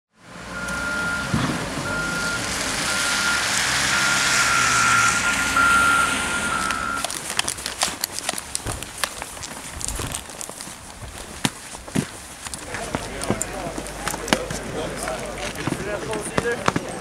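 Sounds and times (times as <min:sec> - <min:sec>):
heavy vehicle engine: 0:00.2 - 0:07.6, 0:12.5 - 0:17.0
reversing alarm beeping: 0:00.5 - 0:07.1.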